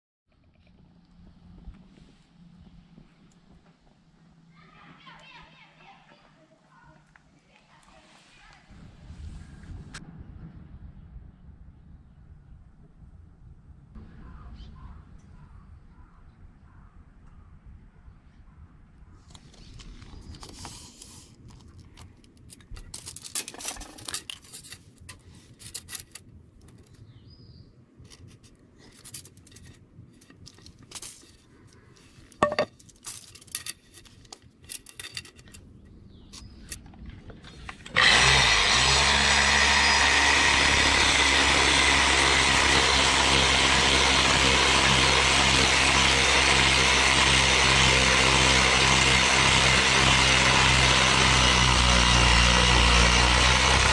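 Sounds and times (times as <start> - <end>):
handling knocks and clicks: 19.3 - 27.0, 28.1 - 37.0
power tool running: 37.9 - 53.9.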